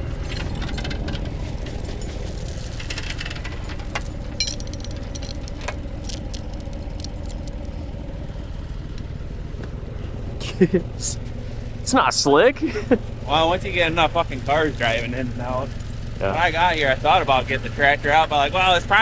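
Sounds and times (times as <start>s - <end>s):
light metallic clinks and rattles: 0.0s - 8.2s, 13.3s - 19.0s
vehicle engine idling: 0.0s - 19.0s.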